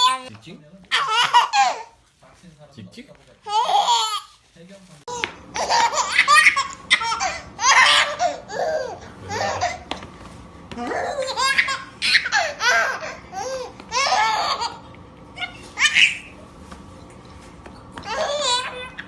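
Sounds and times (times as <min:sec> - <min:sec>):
baby laughing: 0:00.9 - 0:02.0, 0:03.5 - 0:04.3, 0:05.1 - 0:09.9, 0:10.8 - 0:16.3, 0:18.0 - 0:19.0.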